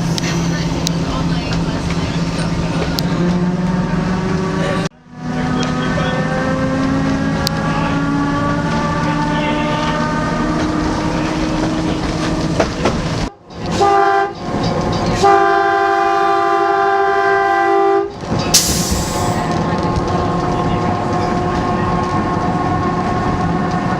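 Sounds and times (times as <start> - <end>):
train running noise: 0.0 - 23.9
train whistle blasts: 13.8 - 14.4, 15.2 - 18.1
short hiss: 18.6 - 19.5.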